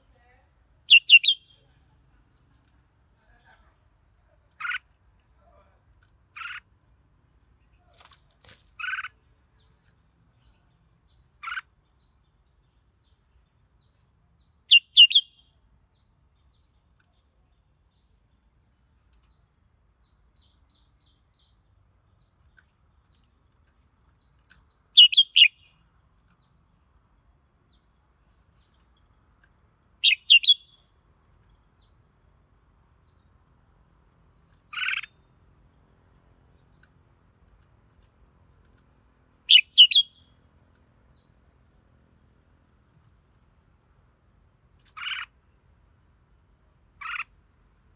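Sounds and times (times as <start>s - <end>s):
bird singing bright phrases: 0.0s - 1.9s, 3.7s - 4.9s, 6.4s - 6.6s, 8.7s - 23.5s, 24.1s - 32.2s, 32.8s - 37.0s, 39.4s - 42.5s, 44.8s - 45.5s, 47.0s - 47.4s.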